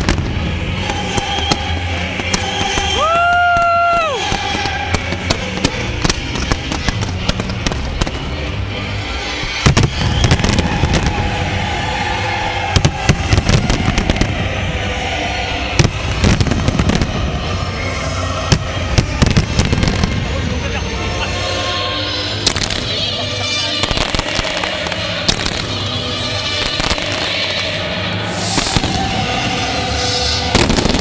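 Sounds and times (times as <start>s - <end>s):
fireworks bursting and crackling: 0.0s - 8.6s, 9.3s - 14.6s, 15.5s - 20.4s, 22.4s - 23.1s, 23.7s - 31.0s
loud music: 0.0s - 31.0s.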